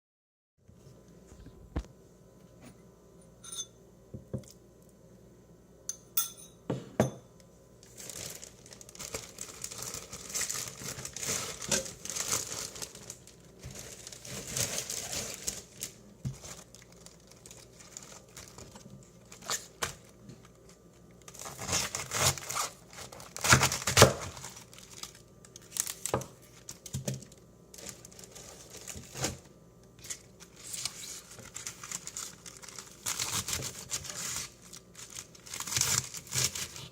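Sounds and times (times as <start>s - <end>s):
crinkly material tearing: 7.8s - 36.9s.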